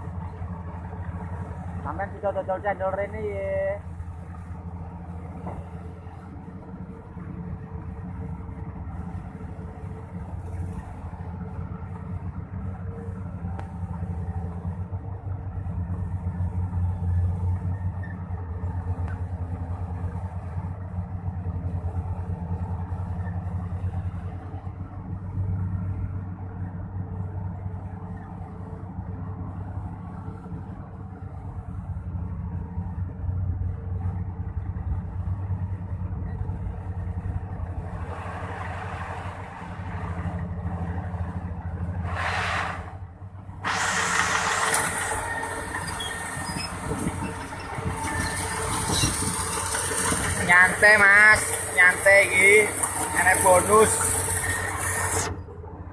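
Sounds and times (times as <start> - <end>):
excavator diesel engine: 0.0 - 55.9
burst of hiss: 42.1 - 42.9, 43.6 - 45.2.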